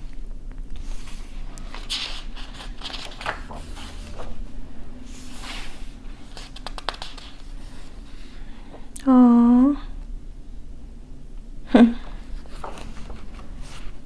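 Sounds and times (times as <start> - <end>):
book pages turning: 0.7 - 4.5, 5.1 - 8.5, 12.2 - 14.0
woman saying aww: 9.0 - 9.9.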